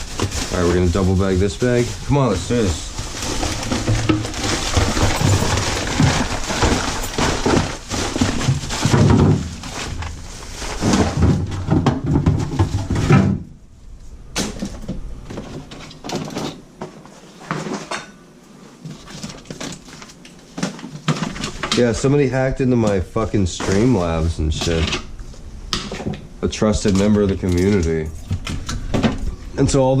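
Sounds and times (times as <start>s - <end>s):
plastic bag rustling: 0.0s - 13.2s, 18.6s - 25.6s
knocks and clatter: 2.7s - 13.5s.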